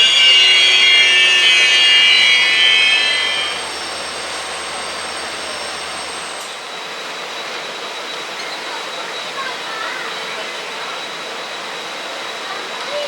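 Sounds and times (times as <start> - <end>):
train rumbling: 0.0 - 6.6
train wheels squealing: 0.0 - 13.0.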